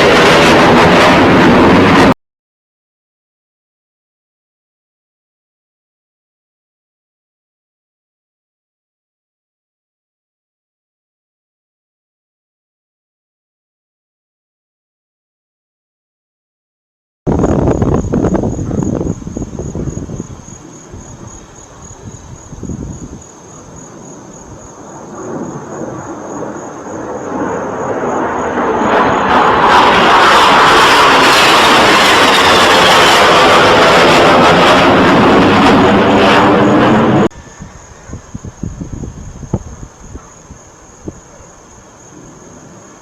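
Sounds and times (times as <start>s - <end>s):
aircraft passing overhead: 0.0s - 2.2s, 17.6s - 43.0s.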